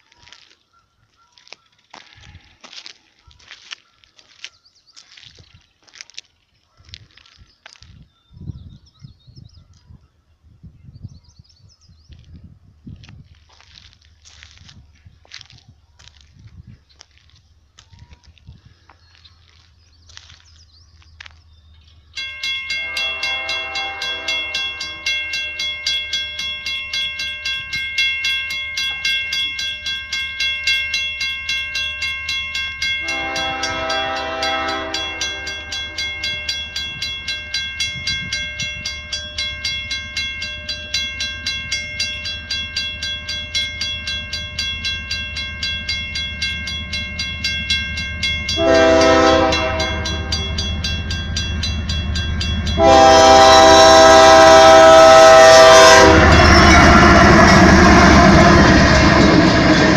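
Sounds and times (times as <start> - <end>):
train rumble: 11.8 - 59.9
level crossing bell clanging: 22.2 - 59.9
train horn blasts: 22.5 - 27.7, 32.8 - 44.6, 46.9 - 59.9.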